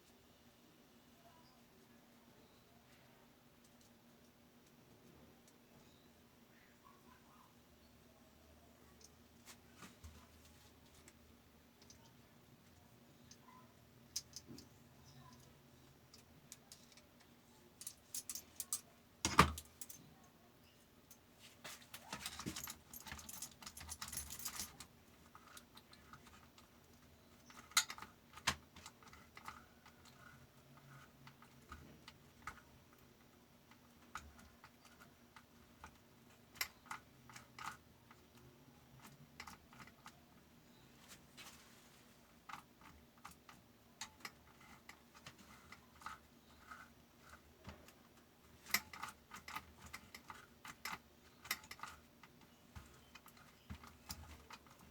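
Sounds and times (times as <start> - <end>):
rustling and scraping: 9.0 - 11.3, 21.2 - 32.7, 39.0 - 43.6, 44.2 - 54.9
small metal clicks and clinks: 13.2 - 20.4, 21.9 - 33.1, 33.7 - 40.8, 42.4 - 54.9.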